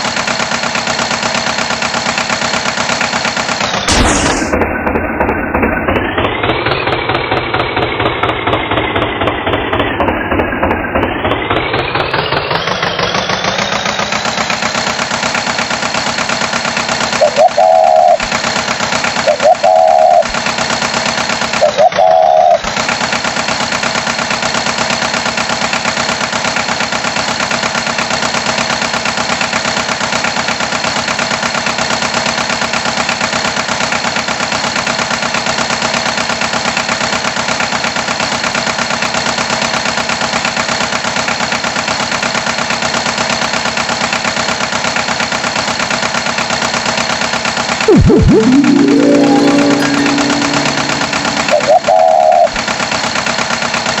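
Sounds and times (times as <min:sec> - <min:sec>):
tractor engine chugging: 0:00.0 - 0:54.0
short loud beeps: 0:47.9 - 0:52.5.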